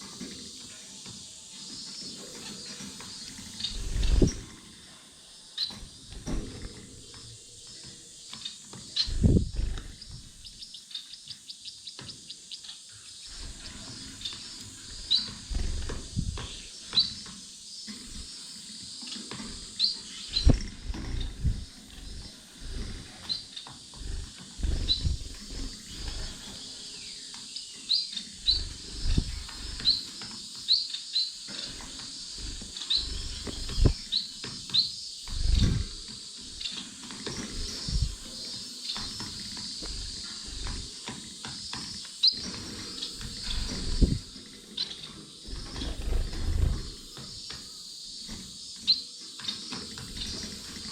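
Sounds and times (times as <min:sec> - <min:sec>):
finches chirping: 0:00.0 - 0:50.9
low thumps and rustles: 0:03.6 - 0:04.6, 0:09.0 - 0:10.6, 0:13.3 - 0:17.1, 0:19.4 - 0:26.6, 0:28.4 - 0:30.0, 0:31.6 - 0:38.4, 0:39.0 - 0:44.4.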